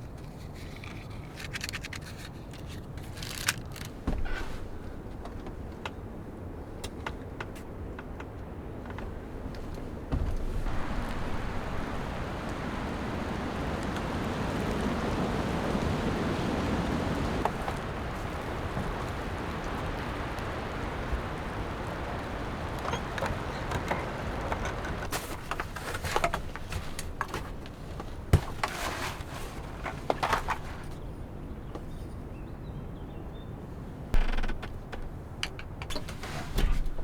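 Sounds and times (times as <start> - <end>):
wind gusting through trees: 0.0 - 37.0
sharp clicks and cracks: 0.8 - 4.0.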